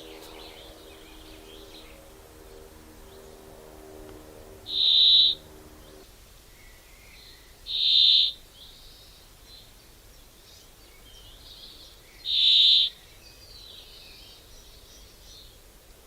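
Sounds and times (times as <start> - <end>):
bird calling high notes: 0.0 - 6.0
faint bird chirps: 10.4 - 15.6.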